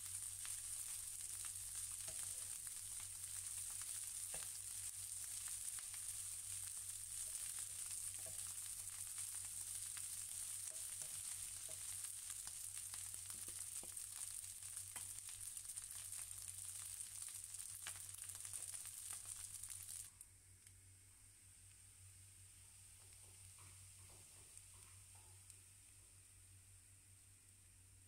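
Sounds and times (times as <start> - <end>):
rice sizzling and crackling: 0.0 - 20.2, 21.6 - 27.6
wooden spatula stirring: 7.2 - 9.3, 10.3 - 12.0.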